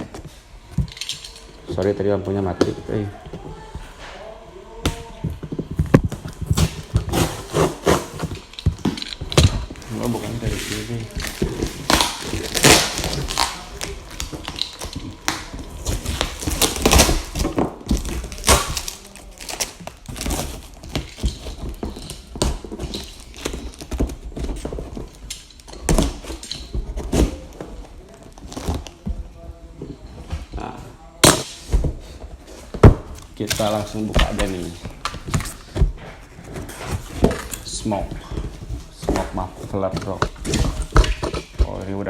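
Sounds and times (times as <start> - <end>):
packaging thunks: 5.6 - 29.1
packaging rustling and scraping: 5.6 - 42.0.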